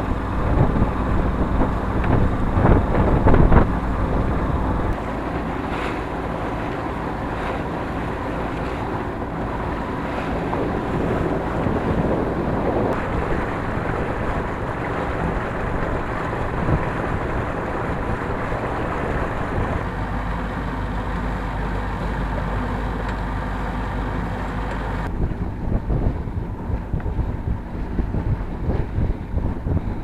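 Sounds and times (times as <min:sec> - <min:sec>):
wind buffeting microphone: 0:00.0 - 0:20.6, 0:25.0 - 0:30.0
steady low rumble: 0:00.0 - 0:30.0.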